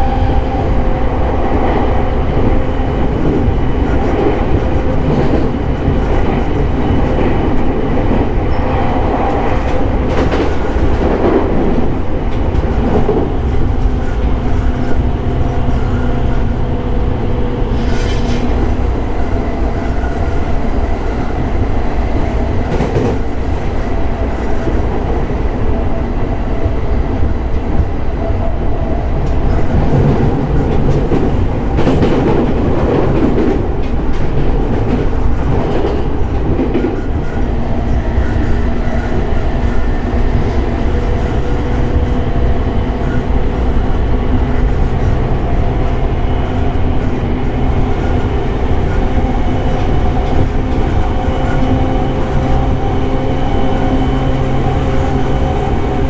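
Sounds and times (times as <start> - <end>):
train wheel and rail rumble: 0.0 - 56.0
rail-joint clicks: 29.1 - 52.8.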